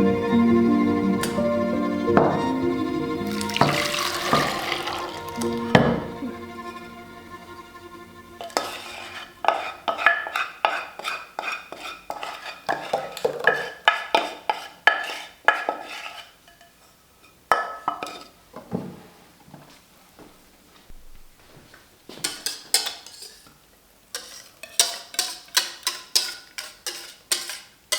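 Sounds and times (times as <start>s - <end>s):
utensil clinking against dish: 3.2s - 6.2s, 22.2s - 23.5s, 24.2s - 27.7s.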